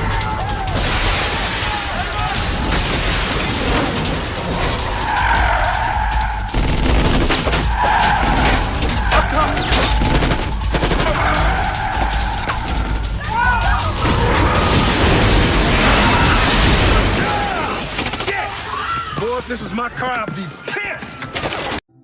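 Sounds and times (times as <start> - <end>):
rapid gunfire: 5.7 - 11.9, 13.9 - 18.6
tyres screeching: 7.4 - 14.9.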